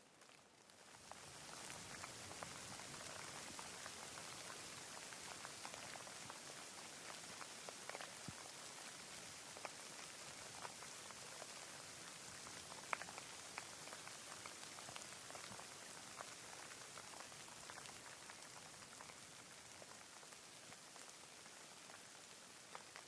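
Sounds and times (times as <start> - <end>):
light rain hissing: 0.0 - 23.0
raindrops ticking: 0.0 - 23.0.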